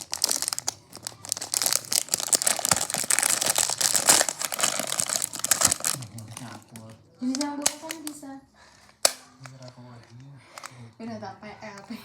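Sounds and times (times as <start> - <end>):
toy packaging crinkling: 0.0 - 8.2.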